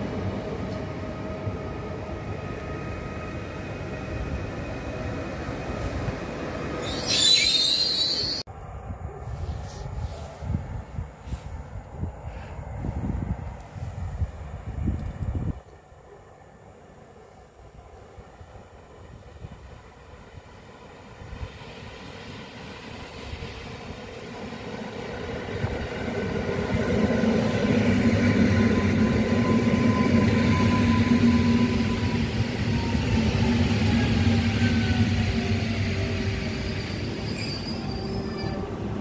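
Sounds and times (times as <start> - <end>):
electric train running noise: 20.9 - 39.0.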